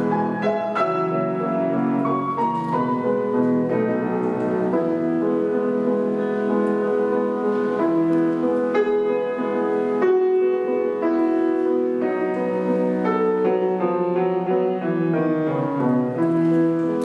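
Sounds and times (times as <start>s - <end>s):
solo classical piano: 0.0s - 17.0s.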